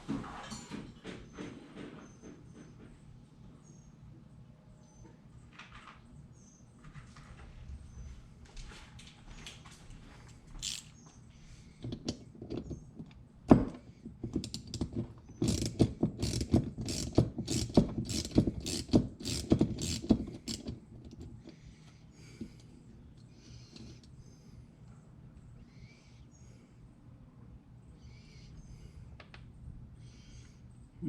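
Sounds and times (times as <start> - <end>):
small metal clicks: 10.6 - 10.9.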